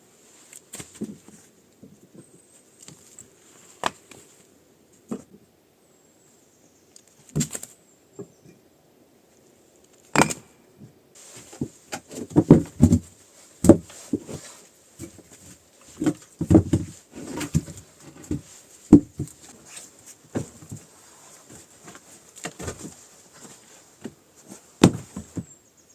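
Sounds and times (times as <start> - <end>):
knocks and thumps: 11.5 - 14.4, 15.9 - 19.4, 20.3 - 20.9, 24.8 - 25.5.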